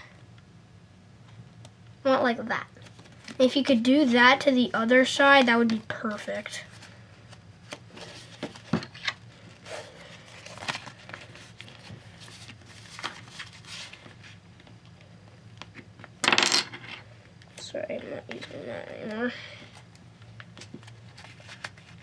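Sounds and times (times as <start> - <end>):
paper rustling and crinkling: 5.4 - 14.4, 20.2 - 22.0.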